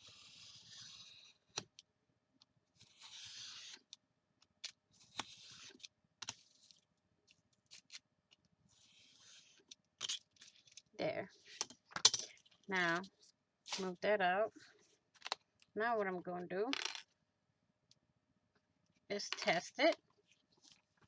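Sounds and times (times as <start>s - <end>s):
paper being cut: 0.0s - 1.5s, 2.8s - 3.9s, 5.0s - 6.8s.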